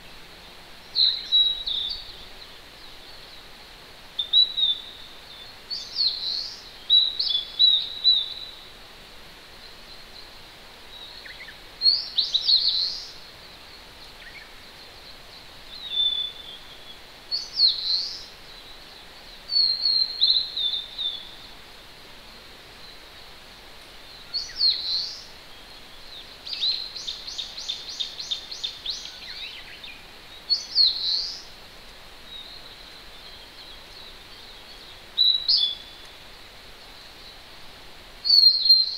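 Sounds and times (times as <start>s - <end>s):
distant stream hissing: 0.0s - 38.9s
small songbirds singing: 0.0s - 38.9s.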